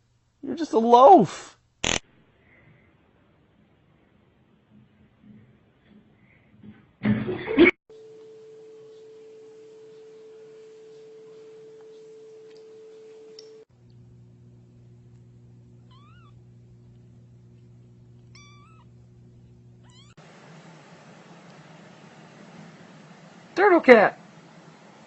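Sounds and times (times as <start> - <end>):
steady background hum: 7.9 - 25.0
cat meowing: 15.9 - 16.4, 18.2 - 18.9, 19.8 - 20.2.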